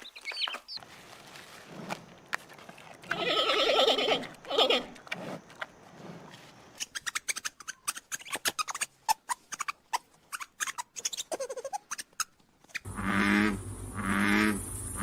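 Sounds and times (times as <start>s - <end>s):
small animal clicks and squeaks: 6.8s - 12.9s.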